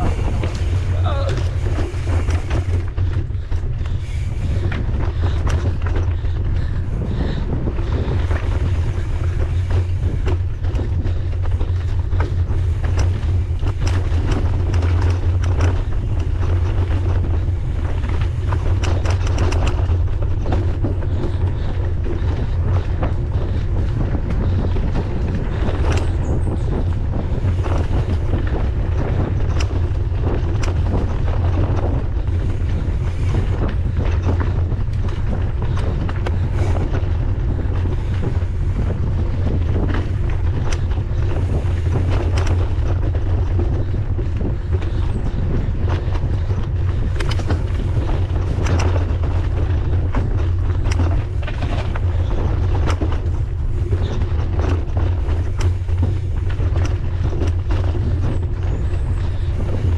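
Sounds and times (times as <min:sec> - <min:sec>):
bike clicking and rattling: 0:00.0 - 0:59.9
wind buffeting microphone: 0:00.0 - 0:59.9.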